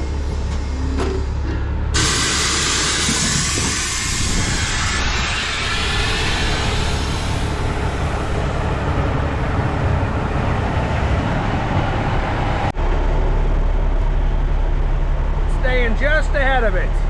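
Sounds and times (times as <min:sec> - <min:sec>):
truck engine drone: 0:00.0 - 0:17.0
tyre hiss on wet road: 0:02.0 - 0:08.4.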